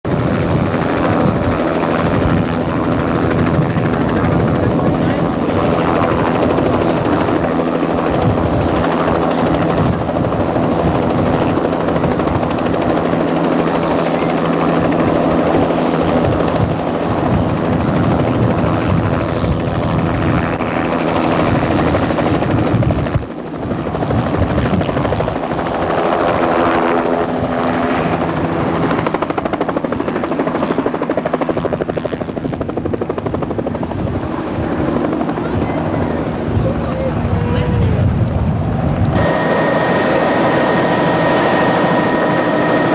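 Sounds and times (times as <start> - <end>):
helicopter engine and rotor: 0.0 - 42.9.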